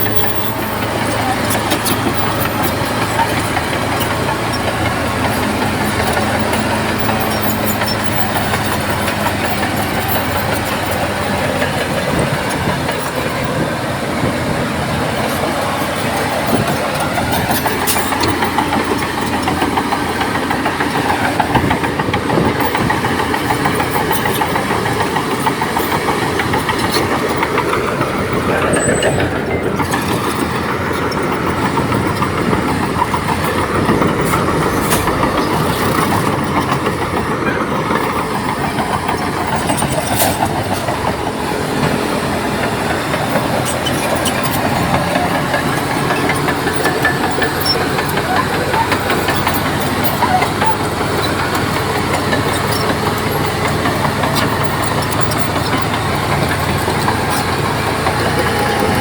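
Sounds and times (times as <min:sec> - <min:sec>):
bulldozer diesel engine: 0:00.0 - 0:59.0
mechanical clatter: 0:15.2 - 0:59.0.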